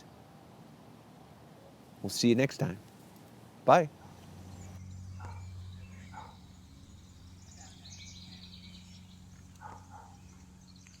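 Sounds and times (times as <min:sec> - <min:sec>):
birds chirping: 0:02.1 - 0:11.0
steady low hum: 0:02.8 - 0:11.0.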